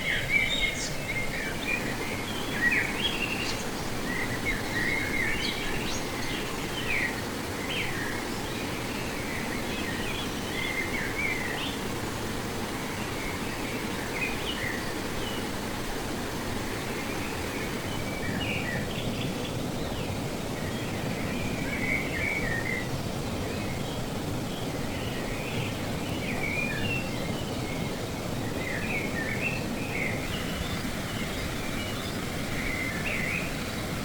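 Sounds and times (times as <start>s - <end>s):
birds chirping: 0.0s - 11.8s, 16.7s - 34.0s
river water rushing: 0.0s - 34.0s.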